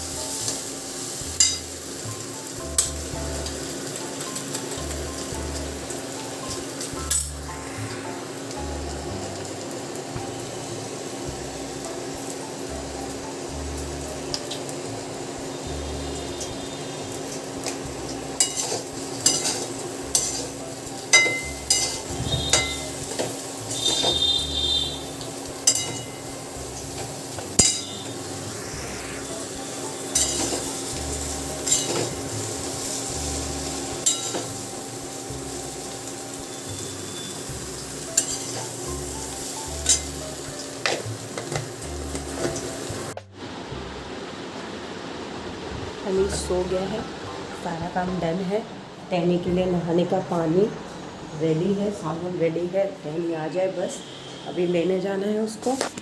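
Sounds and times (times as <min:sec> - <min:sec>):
food sizzling: 0:00.0 - 0:48.6, 0:54.6 - 0:56.0
metal utensils clinking on pots: 0:01.4 - 0:01.7, 0:06.5 - 0:07.4, 0:18.4 - 0:24.4, 0:25.6 - 0:26.4, 0:27.6 - 0:28.1, 0:30.2 - 0:30.7, 0:31.6 - 0:32.2, 0:34.0 - 0:34.6, 0:38.2 - 0:38.8, 0:39.8 - 0:40.2
steady hum: 0:25.7 - 0:35.6.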